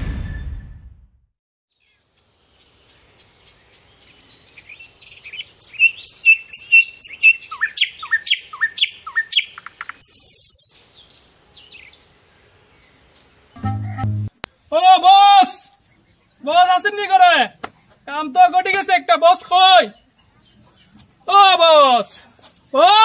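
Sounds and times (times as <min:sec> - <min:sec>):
small birds chirping: 0:01.7 - 0:14.7, 0:15.6 - 0:21.5
high buzzy bird note: 0:13.6 - 0:14.4.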